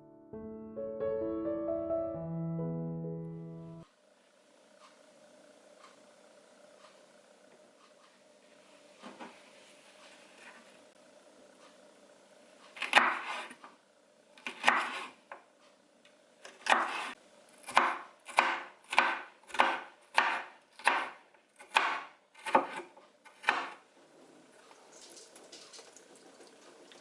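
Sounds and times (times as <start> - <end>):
knife chopping on cutting board: 12.8 - 13.6, 14.4 - 15.1, 16.4 - 23.8.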